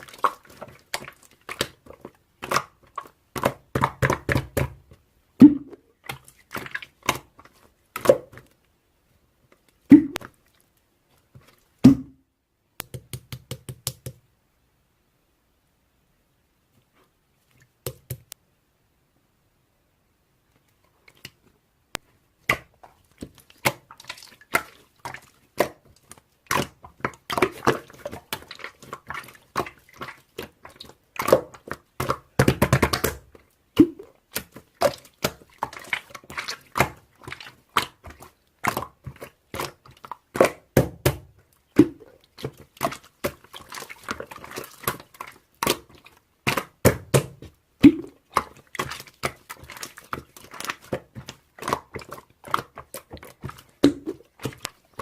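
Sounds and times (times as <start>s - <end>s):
close-up clicks and taps: 12.8s - 14.2s.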